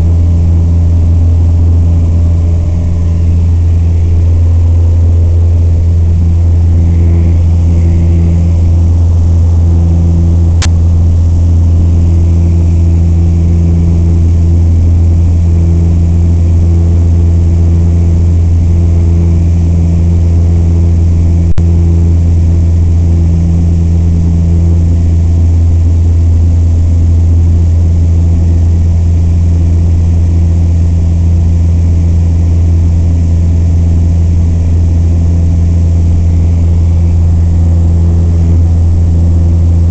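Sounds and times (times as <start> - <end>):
aircraft piston engine and propeller: 0.0 - 39.9.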